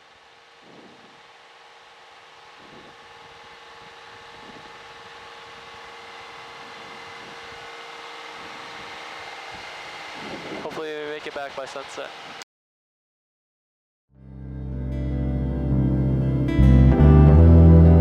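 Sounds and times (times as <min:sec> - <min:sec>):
airplane engine and propeller droning: 0:00.0 - 0:12.4.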